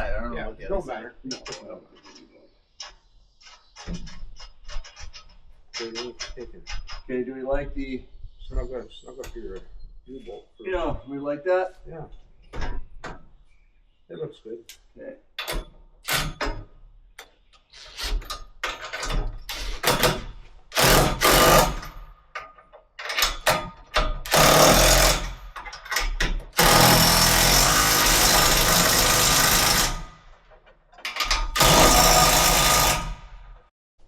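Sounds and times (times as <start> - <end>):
impact wrench tightening nuts: 17.9 - 30.0, 31.0 - 33.2.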